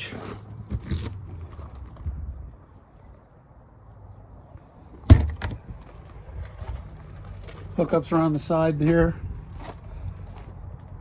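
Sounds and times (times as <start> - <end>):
loud sharp thump: 5.1 - 5.6.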